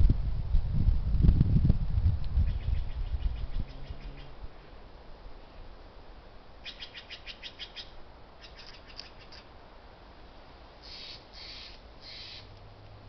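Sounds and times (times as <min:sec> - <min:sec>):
wind: 0:00.0 - 0:13.0
distant highway noise: 0:02.3 - 0:13.0
harsh raspy bird calls: 0:06.6 - 0:09.4, 0:10.8 - 0:12.5
birds chirping: 0:10.8 - 0:12.5.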